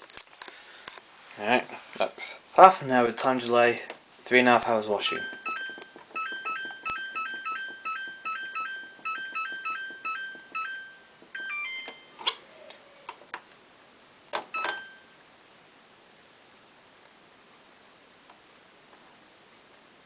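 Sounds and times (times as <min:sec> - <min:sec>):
sharp clicks: 0:04.6 - 0:10.0
stepping run of tones: 0:04.6 - 0:12.2
short electronic beeps: 0:05.1 - 0:12.2, 0:14.5 - 0:15.1.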